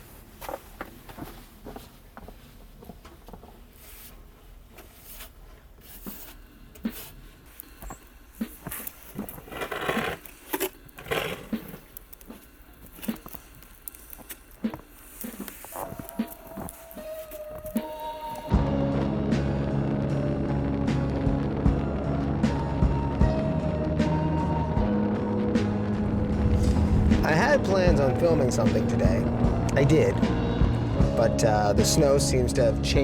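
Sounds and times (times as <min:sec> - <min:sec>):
footsteps crunching in snow: 0:00.0 - 0:18.3
music: 0:12.4 - 0:33.0.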